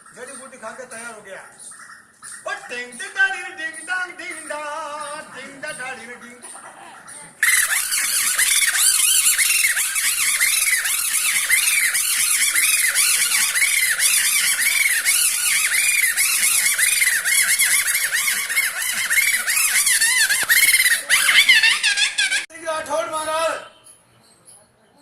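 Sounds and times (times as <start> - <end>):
squeaky puppet voice: 6.3 - 22.5.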